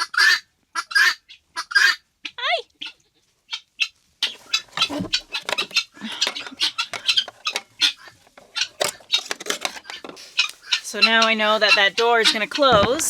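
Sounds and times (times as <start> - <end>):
wire scraping and rattling on a track: 4.2 - 13.0.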